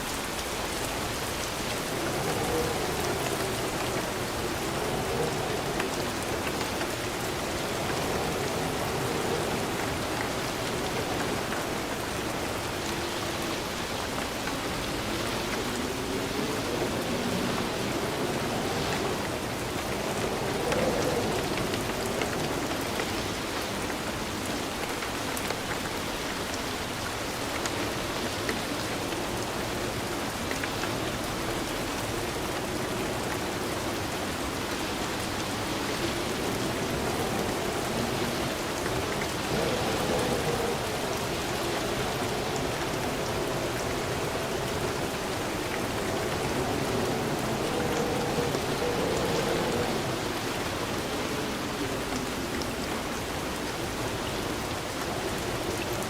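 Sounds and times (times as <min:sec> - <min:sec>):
steady rain hissing: 0:00.0 - 0:56.0.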